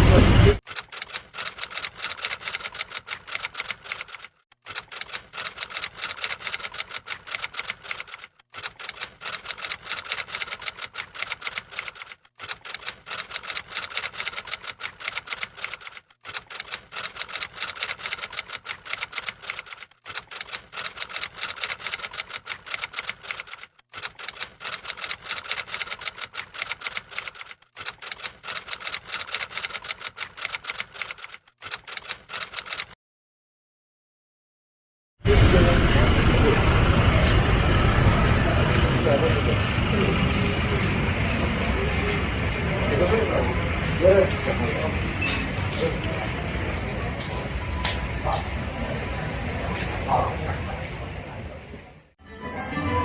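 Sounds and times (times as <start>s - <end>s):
typewriter keys clicking: 0.7s - 32.9s.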